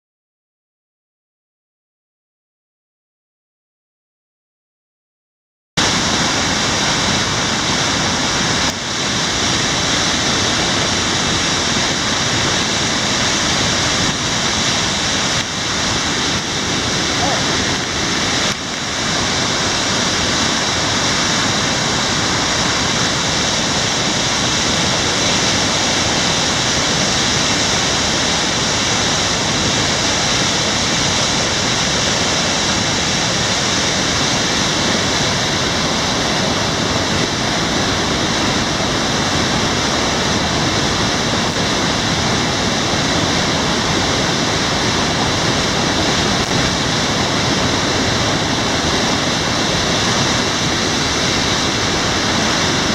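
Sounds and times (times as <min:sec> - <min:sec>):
heavy rain falling: 0:05.8 - 0:52.9.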